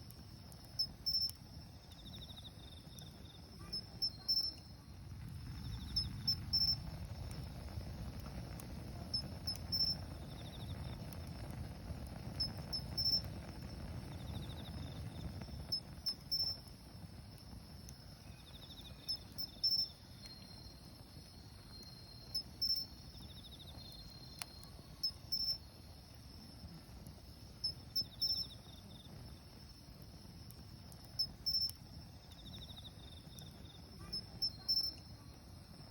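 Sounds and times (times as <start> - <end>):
crickets chirping: 0.0 - 35.9
wood fire hissing: 0.0 - 35.9
insect pulsed trill: 0.5 - 4.8, 5.4 - 7.8, 9.2 - 11.0, 12.3 - 13.3, 14.1 - 16.8, 17.4 - 26.2, 27.6 - 29.0, 30.8 - 31.8, 32.4 - 35.2.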